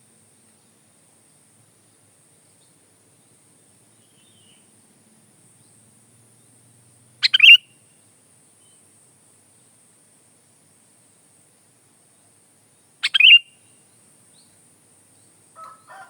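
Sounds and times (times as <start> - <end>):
bulbul chirping: 7.2 - 7.6, 13.0 - 13.4.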